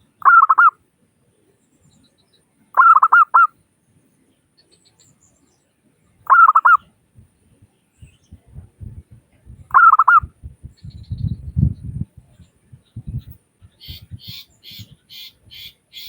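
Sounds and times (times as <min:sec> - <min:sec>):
dove cooing: 0:00.2 - 0:00.8, 0:02.8 - 0:03.5, 0:06.3 - 0:06.8, 0:09.7 - 0:10.3.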